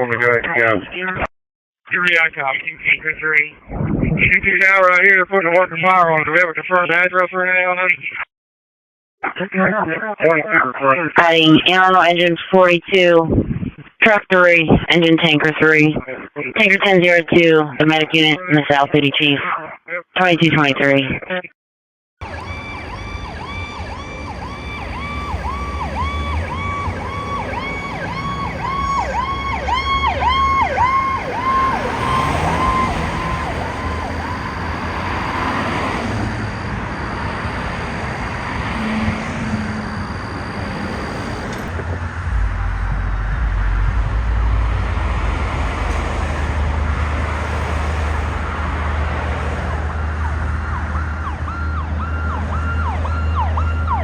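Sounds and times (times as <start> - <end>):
heavy engine rumble: 22.2 - 53.0
emergency siren yelping: 22.2 - 54.0
road noise: 22.2 - 54.0.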